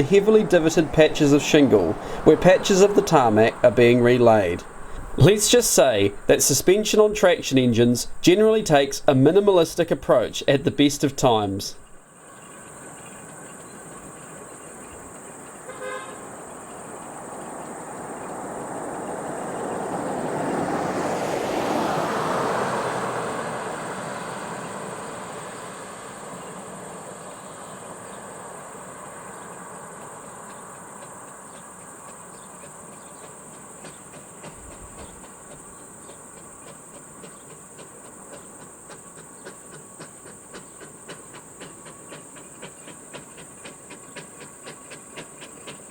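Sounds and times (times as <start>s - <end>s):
steam engine rhythmic chuffing: 0.0s - 12.0s, 29.9s - 45.9s.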